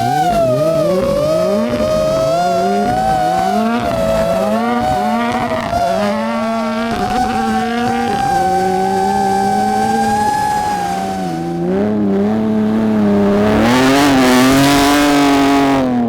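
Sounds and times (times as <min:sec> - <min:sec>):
rally car engine revving: 0:00.0 - 0:16.0
steady high whine: 0:00.0 - 0:16.0.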